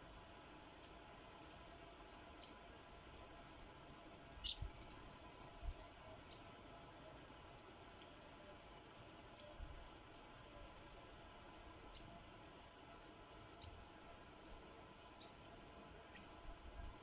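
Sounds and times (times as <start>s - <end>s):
sparrows chirping: 1.8s - 10.2s, 11.8s - 12.2s, 13.4s - 16.5s.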